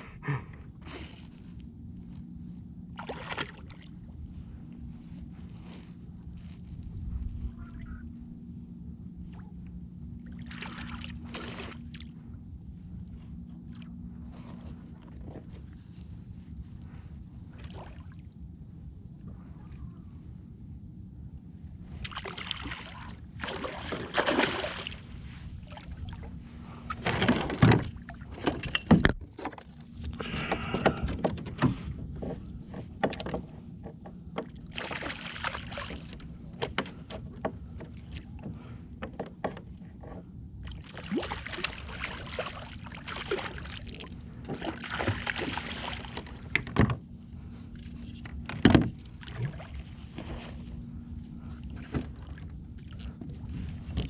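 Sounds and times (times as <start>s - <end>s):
low rumble: 0.0s - 29.2s
water washing against hull: 2.9s - 4.5s, 10.2s - 12.3s, 21.9s - 29.4s, 34.3s - 38.8s, 40.6s - 54.0s.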